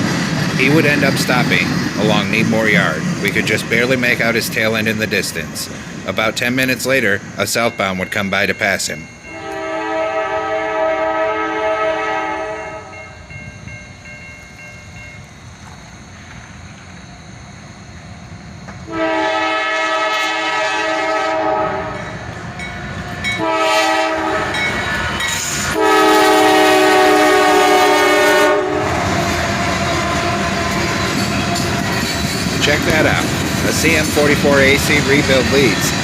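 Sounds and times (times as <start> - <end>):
passing train rumble: 0.0 - 36.0
train horn blasts: 9.2 - 13.0, 18.9 - 22.0, 23.4 - 24.7, 25.7 - 31.8.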